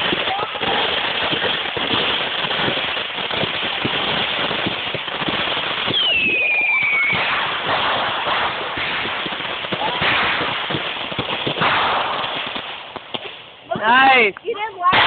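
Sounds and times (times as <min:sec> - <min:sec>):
fireworks crackling: 0:00.0 - 0:15.0
firework whistle sweeping down: 0:05.8 - 0:07.4.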